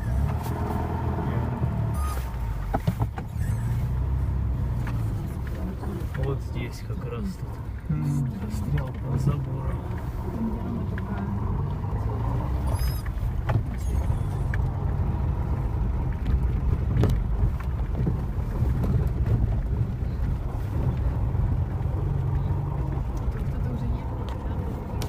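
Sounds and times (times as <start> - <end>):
car engine running: 0.0 - 25.0.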